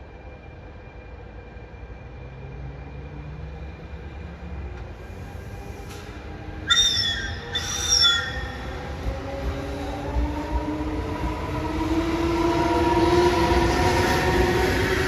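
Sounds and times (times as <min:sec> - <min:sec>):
low rumble of train: 0:00.0 - 0:15.0
train horn blasts: 0:06.7 - 0:08.8.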